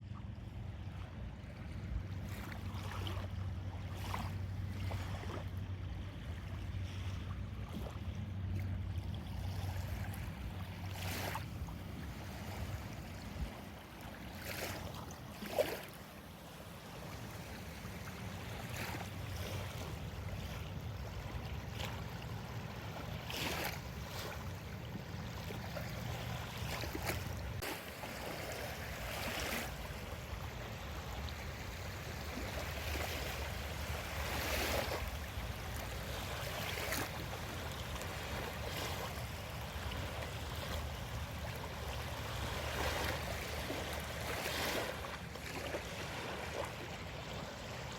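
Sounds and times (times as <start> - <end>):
wind rumble on microphone: 0.0 - 47.9
small waves splashing on beach: 0.2 - 47.9.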